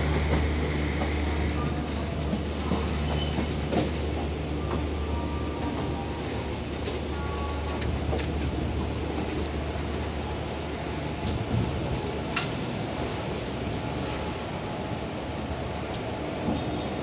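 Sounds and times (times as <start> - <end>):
train coach rumbling and rattling: 0.0 - 17.0
wheels clicking over rail joints: 11.2 - 13.5.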